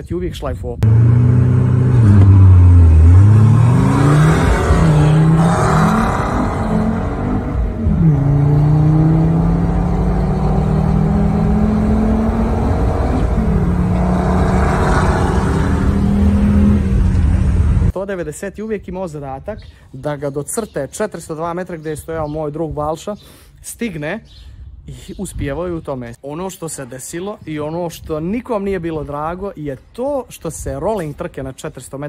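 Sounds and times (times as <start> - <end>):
car engine accelerating: 0.8 - 17.9.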